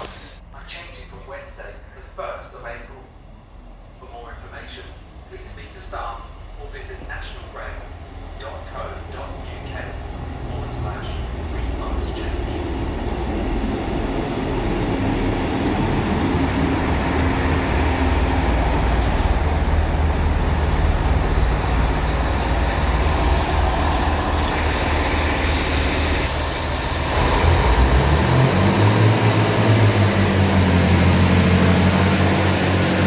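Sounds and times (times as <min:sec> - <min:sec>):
high hiss: 0:00.0 - 0:00.4
diesel train engine and wheel rumble: 0:00.0 - 0:33.0.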